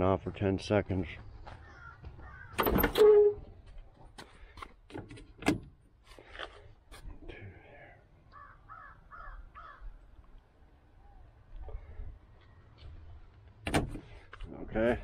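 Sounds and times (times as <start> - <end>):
bird calling: 1.4 - 2.7, 8.3 - 10.0.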